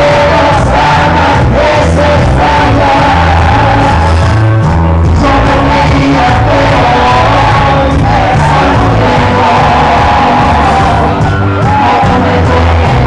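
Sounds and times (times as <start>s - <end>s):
loud live band music: 0.0s - 13.0s
many voices singing: 0.0s - 13.0s
steady bass beat: 0.0s - 13.0s.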